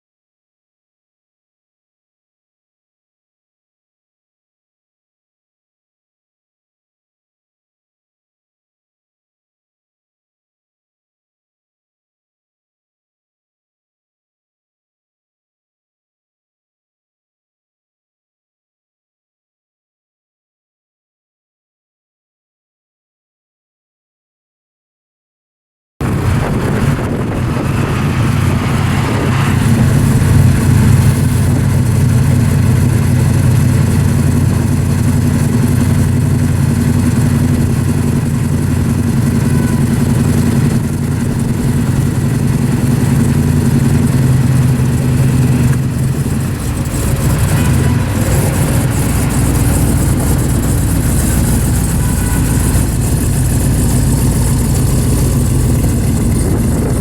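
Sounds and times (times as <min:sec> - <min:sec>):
car engine droning: 0:26.0 - 0:57.0.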